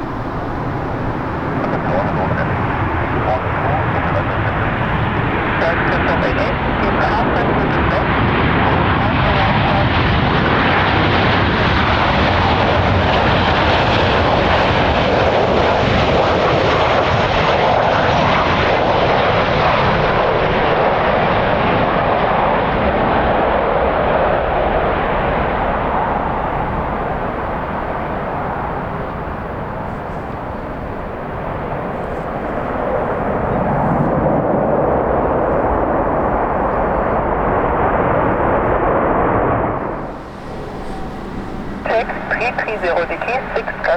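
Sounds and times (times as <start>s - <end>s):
jet airliner engine rushing: 0.0s - 43.9s.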